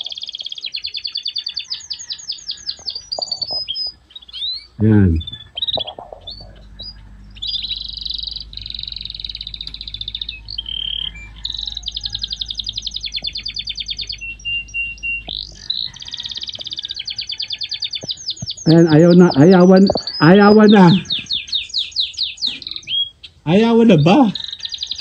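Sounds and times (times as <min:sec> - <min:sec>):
birds chirping: 0:00.0 - 0:25.0
tractor and mower humming: 0:06.4 - 0:17.1.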